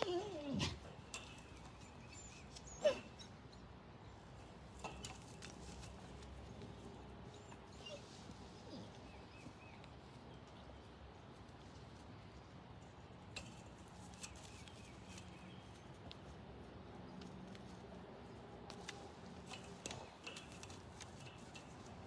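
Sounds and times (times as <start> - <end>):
dog whimpering: 0.0 - 0.8, 2.7 - 3.2.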